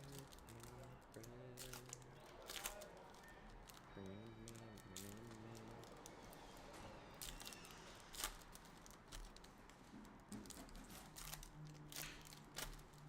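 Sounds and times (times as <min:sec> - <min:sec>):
trading cards clicking and rustling: 0:00.0 - 0:13.0.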